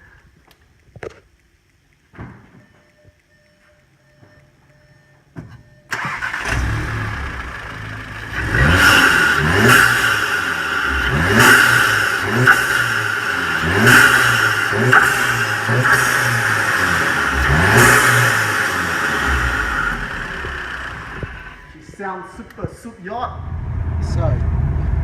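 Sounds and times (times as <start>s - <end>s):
car engine starting and revving: 5.9s - 21.8s, 23.4s - 25.0s.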